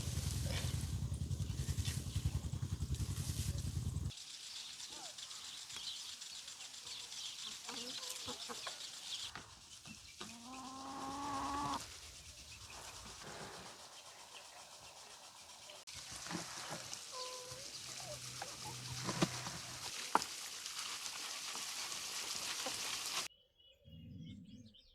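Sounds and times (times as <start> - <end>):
motor throbbing: 0.0 - 4.1
faint bird chirping: 3.5 - 15.9, 23.3 - 24.9
high hiss: 4.1 - 23.3.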